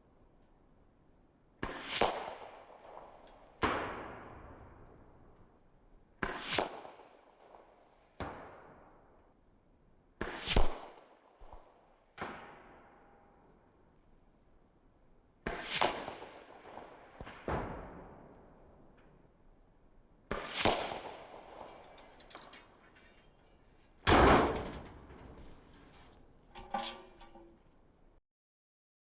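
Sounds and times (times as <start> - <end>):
pellet striking crack: 1.6 - 2.6, 6.2 - 7.1, 12.2 - 12.8, 15.5 - 18.2, 20.3 - 22.0, 24.0 - 25.4
air rifle shots: 20.3 - 21.9.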